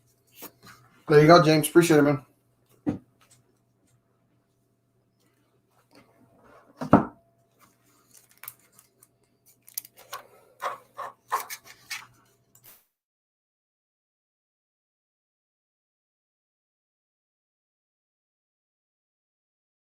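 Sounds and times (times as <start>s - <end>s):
knock on a table: 6.8s - 7.2s
cards scraping and rubbing: 7.9s - 12.8s.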